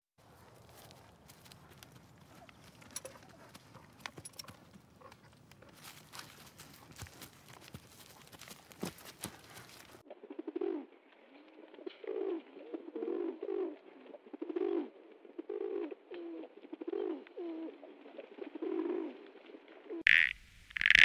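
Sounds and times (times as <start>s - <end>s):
faint clicks and rustles: 0.2s - 10.0s
pigeons cooing: 0.3s - 7.8s, 8.8s - 10.9s, 11.8s - 19.2s.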